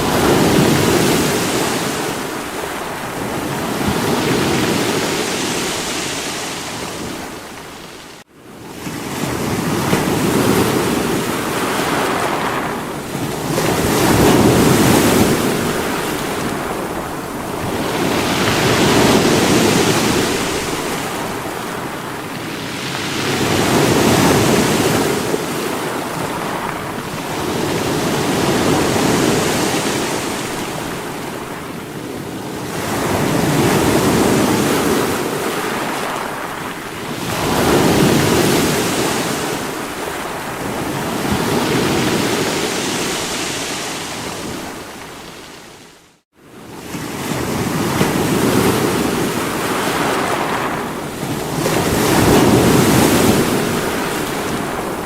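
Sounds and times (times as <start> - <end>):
waves breaking against rocks: 8.8 - 31.6.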